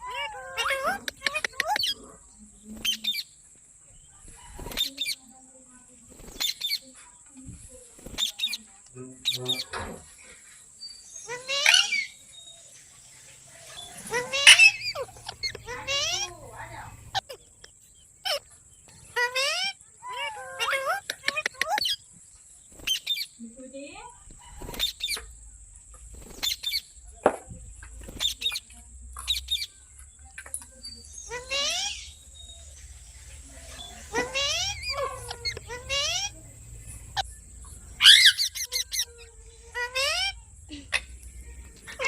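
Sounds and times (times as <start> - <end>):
parakeet chirping: 0.0 - 2.2, 11.0 - 12.6, 13.6 - 22.1, 22.7 - 23.4, 24.4 - 25.4, 26.2 - 27.0, 28.0 - 42.0
parrot harsh calls: 0.0 - 2.2, 11.2 - 12.2, 13.8 - 17.4, 19.1 - 22.0, 31.2 - 32.3, 33.6 - 41.2.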